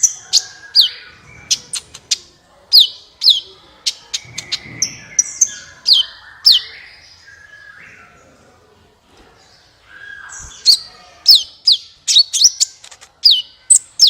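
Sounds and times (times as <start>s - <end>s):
sunbird singing: 0.0s - 8.4s, 9.6s - 14.0s.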